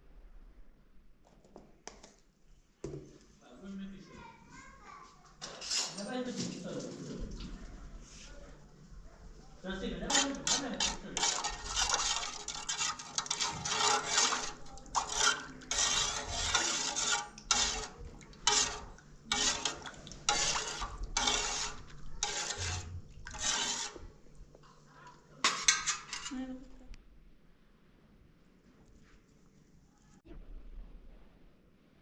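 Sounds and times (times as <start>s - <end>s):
metal pots scraping and clattering: 5.4s - 7.5s, 9.8s - 26.7s.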